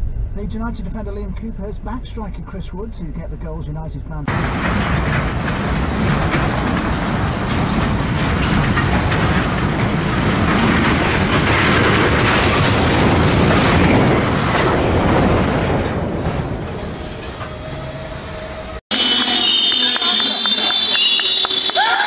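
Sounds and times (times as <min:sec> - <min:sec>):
derailing cars grinding and crashing: 0:04.2 - 0:18.0
heavy knocks: 0:04.3 - 0:16.6
freight cars clattering over rails: 0:04.3 - 0:17.6.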